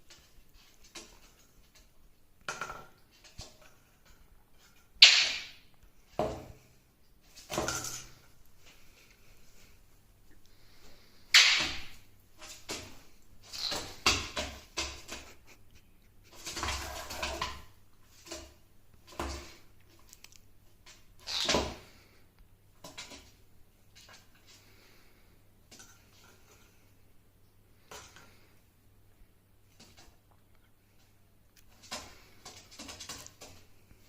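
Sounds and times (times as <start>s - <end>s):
scraping and rustling: 12.3s - 22.1s.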